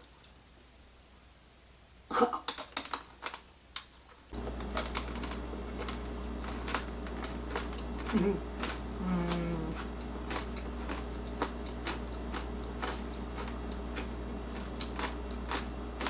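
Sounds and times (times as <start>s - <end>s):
crunching and chewing: 4.3s - 16.0s
steady low hum: 4.3s - 16.0s.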